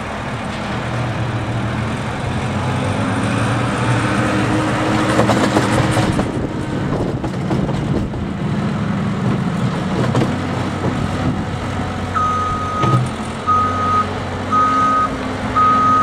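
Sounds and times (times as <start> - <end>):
reversing alarm beeping: 12.2 - 16.0.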